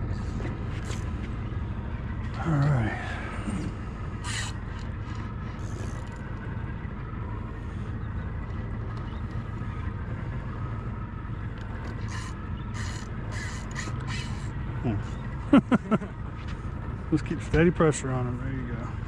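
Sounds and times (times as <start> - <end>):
boat engine idling: 0.0 - 19.0.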